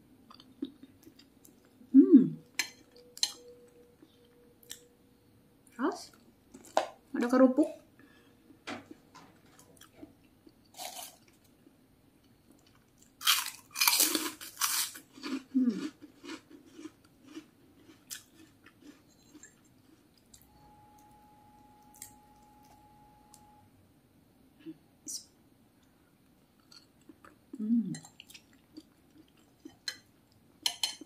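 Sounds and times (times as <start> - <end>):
crackers crunching being chewed: 9.6 - 11.6, 12.5 - 20.4, 26.6 - 29.9.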